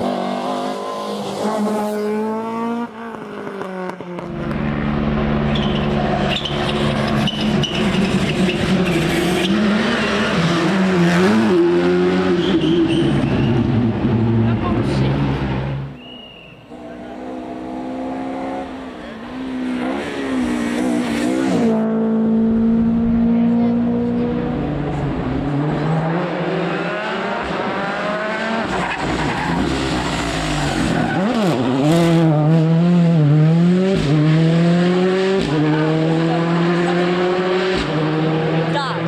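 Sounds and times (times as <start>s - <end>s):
rally car engine revving: 0.0s - 16.0s, 16.7s - 39.0s.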